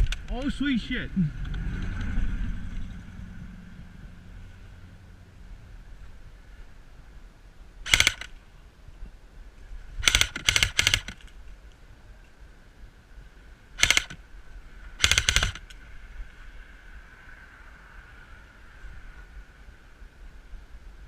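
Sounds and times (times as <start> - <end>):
airsoft gun rapid-fire bursts: 7.9 - 8.3, 10.0 - 11.3, 13.8 - 14.2, 15.0 - 15.7.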